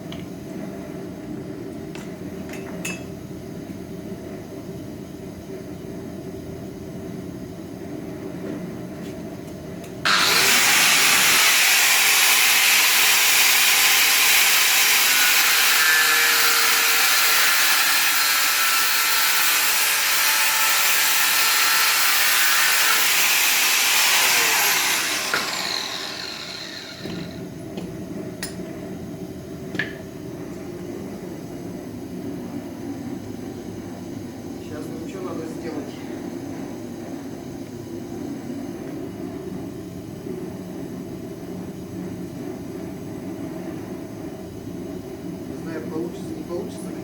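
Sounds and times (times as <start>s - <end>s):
power tool whining: 10.1s - 27.4s.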